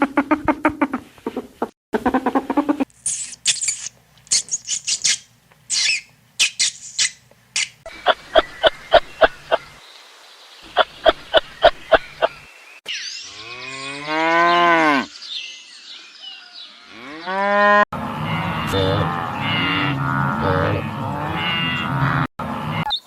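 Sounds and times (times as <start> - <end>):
cow mooing: 16.8 - 22.8.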